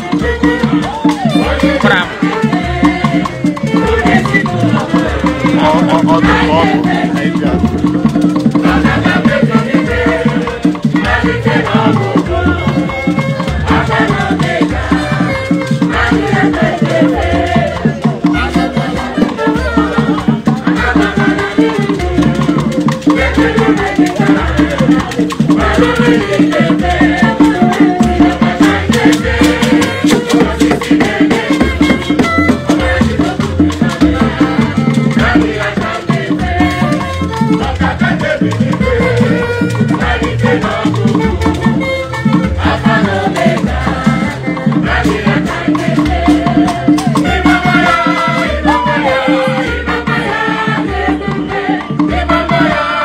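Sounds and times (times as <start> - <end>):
percussion strokes: 0.0 - 53.0
melody: 48.5 - 49.9.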